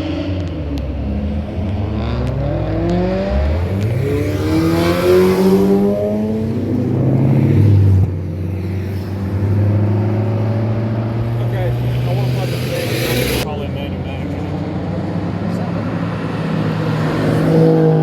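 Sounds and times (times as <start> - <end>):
car engine accelerating past: 0.1 - 13.5.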